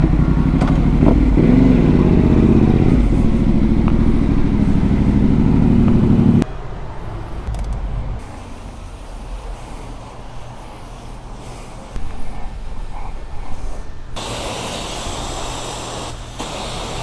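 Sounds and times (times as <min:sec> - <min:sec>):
motorcycle engine revving: 0:00.0 - 0:10.5.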